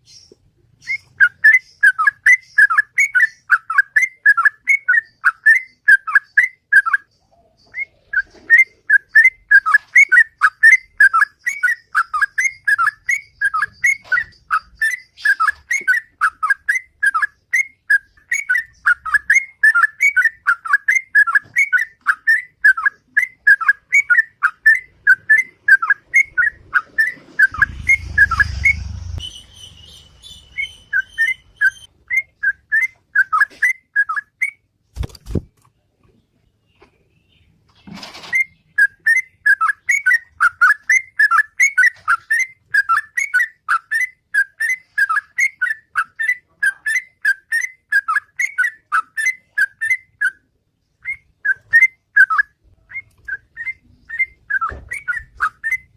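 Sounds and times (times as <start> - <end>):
bird singing whistled notes: 0.0 - 34.7, 38.4 - 55.9
low rumble: 26.6 - 30.3.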